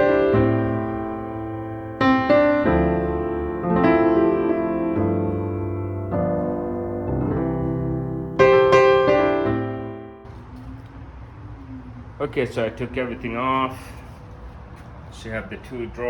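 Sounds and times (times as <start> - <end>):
slow piano chords: 0.0 - 10.3.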